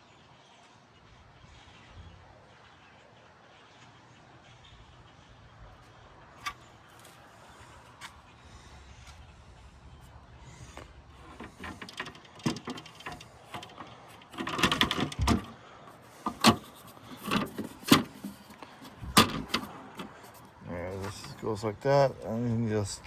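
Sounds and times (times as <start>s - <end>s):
latches and doors clicking: 11.2s - 21.4s.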